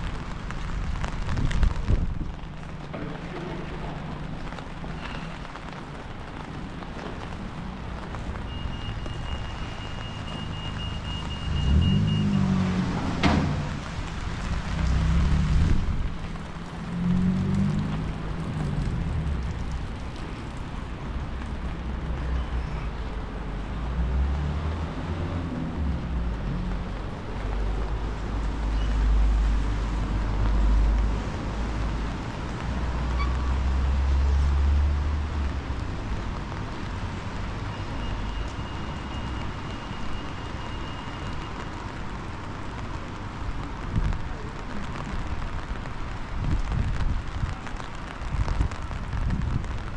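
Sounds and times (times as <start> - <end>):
wind and rain hiss: 0.0 - 49.9
wind buffeting microphone: 1.0 - 2.9, 46.3 - 49.9
cars driving past: 2.5 - 43.9.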